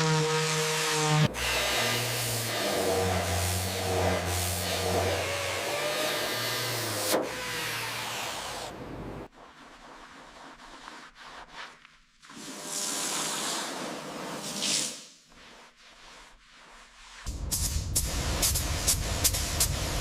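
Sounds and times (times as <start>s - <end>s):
hissing spray: 1.4s - 7.1s.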